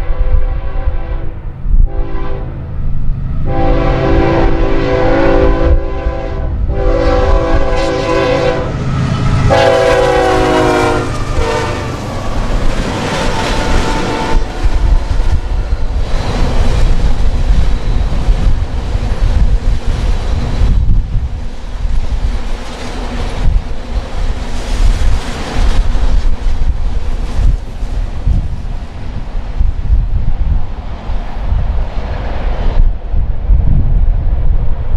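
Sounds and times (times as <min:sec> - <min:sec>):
train air horn blasts: 0:00.0 - 0:02.7, 0:03.4 - 0:15.9
train rumble and wheel clatter: 0:00.0 - 0:34.9.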